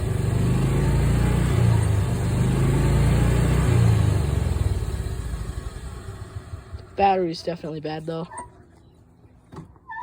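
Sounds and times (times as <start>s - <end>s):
gas engine revving: 0.0s - 6.9s.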